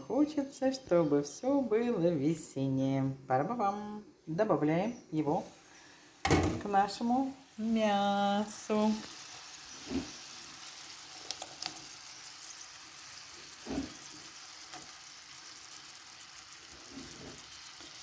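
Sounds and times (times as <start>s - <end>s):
meat sizzling in oil: 5.2s - 18.0s.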